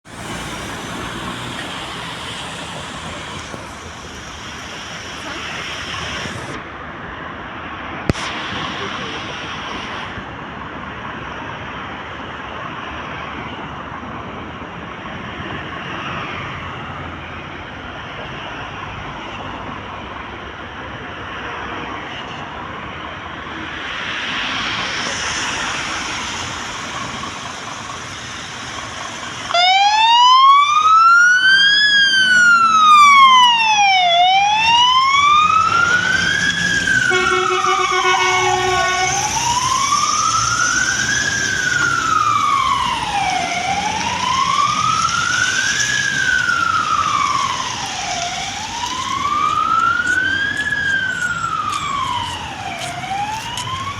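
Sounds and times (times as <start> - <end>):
road and engine noise: 0.0 - 53.9
electronic siren wailing: 29.5 - 53.9
air horn blast: 36.9 - 39.6.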